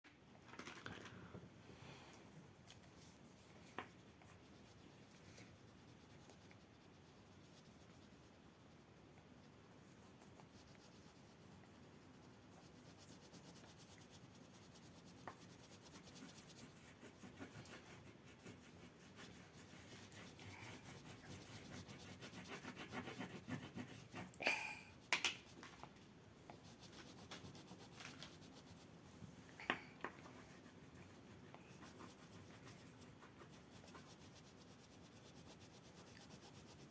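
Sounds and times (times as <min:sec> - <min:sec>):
drawing tool scratching paper: 0:10.6 - 0:24.4.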